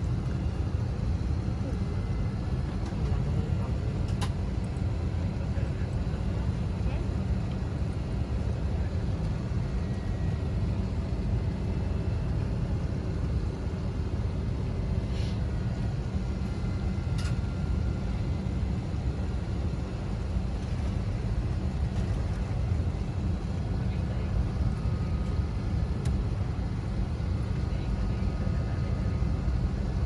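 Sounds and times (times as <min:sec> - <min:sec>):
airliner cabin engine rumble: 0:00.0 - 0:30.0.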